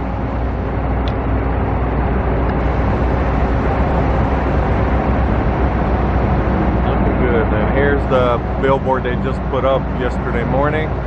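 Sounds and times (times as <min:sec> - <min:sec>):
low outdoor rumble: 0:00.0 - 0:11.0
even hiss: 0:02.6 - 0:11.0.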